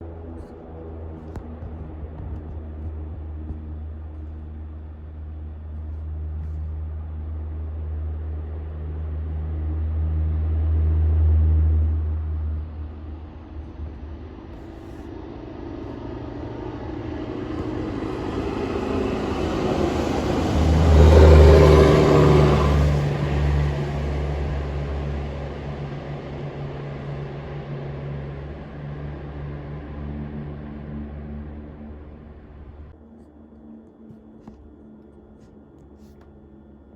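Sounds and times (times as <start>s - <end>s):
tyre noise: 0.4s - 6.6s.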